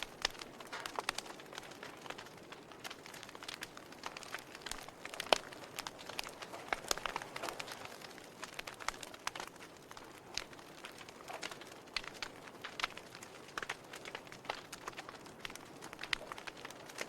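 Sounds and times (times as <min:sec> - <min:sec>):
steady hiss of burning: 0:00.0 - 0:17.0
wood fire pops and snaps: 0:00.0 - 0:17.0.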